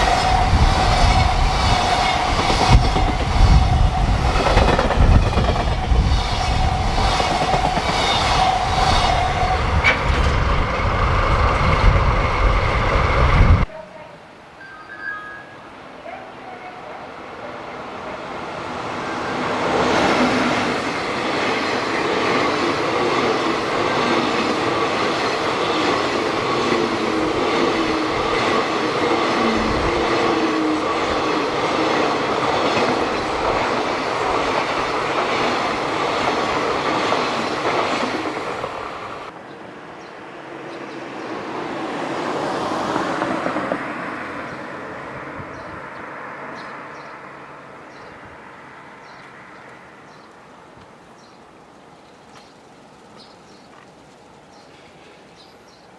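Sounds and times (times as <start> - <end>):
train wheels clattering on rails: 0.0 - 13.3
quieter train passing: 0.0 - 13.8, 14.6 - 55.9.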